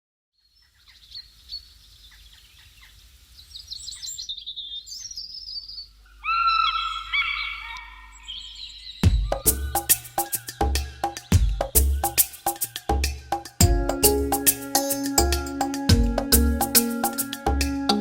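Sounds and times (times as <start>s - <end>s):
wild birds chirping: 0.3s - 18.0s
bird call with ringing notes: 6.2s - 18.0s.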